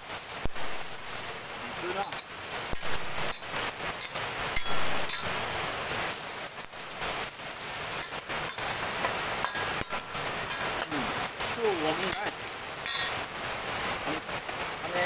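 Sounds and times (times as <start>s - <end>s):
leaves sizzling in hot oil: 0.0s - 15.0s
spatula scraping pan: 2.8s - 5.6s.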